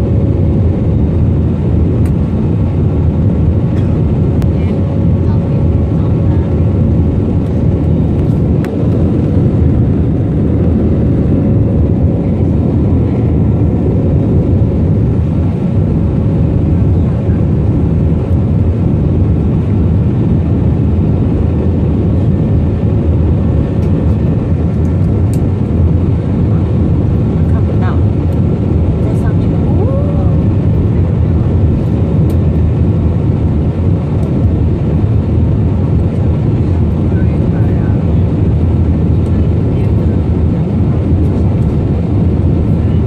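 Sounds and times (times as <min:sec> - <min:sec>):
jet engine and airflow roar: 0:00.0 - 0:43.0.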